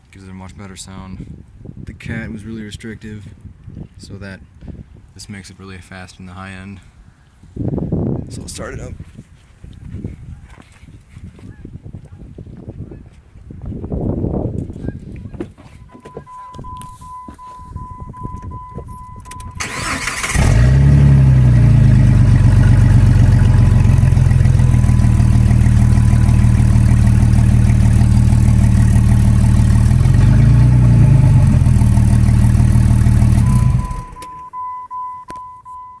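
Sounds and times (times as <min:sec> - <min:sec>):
car engine starting and idling: 0:19.2 - 0:34.6
high electronic tone: 0:22.3 - 0:27.4.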